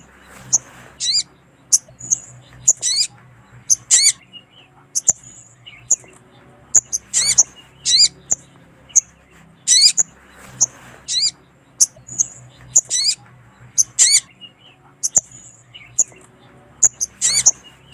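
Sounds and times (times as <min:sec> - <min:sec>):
bird calling: 0:00.0 - 0:17.9.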